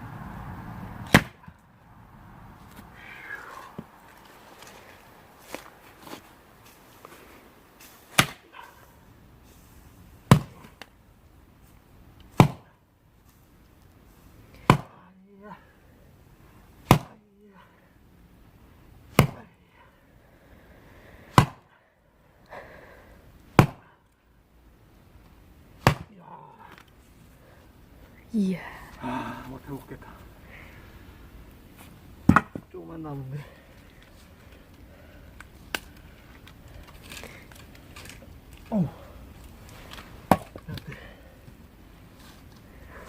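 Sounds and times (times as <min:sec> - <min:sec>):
axe splitting firewood: 0:01.0 - 0:01.6, 0:07.8 - 0:08.8, 0:10.2 - 0:10.9, 0:12.2 - 0:12.7, 0:14.5 - 0:15.7, 0:16.8 - 0:17.3, 0:19.1 - 0:19.6, 0:21.3 - 0:21.8, 0:23.5 - 0:23.9, 0:25.8 - 0:27.0, 0:32.2 - 0:32.8, 0:35.4 - 0:41.6.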